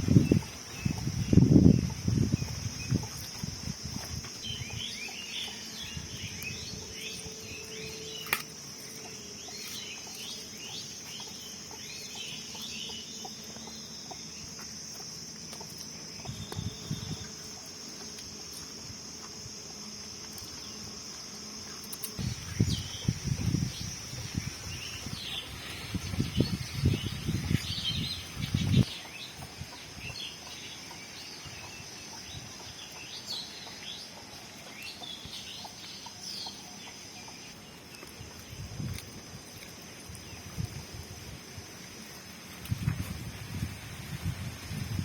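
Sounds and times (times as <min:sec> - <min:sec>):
insects buzzing: 0:00.0 - 0:45.0.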